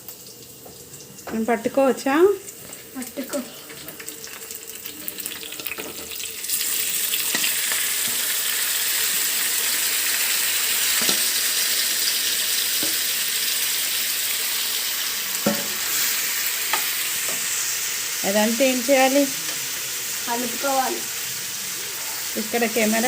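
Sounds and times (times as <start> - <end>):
chicken sizzling in hot oil: 0.0 - 23.0.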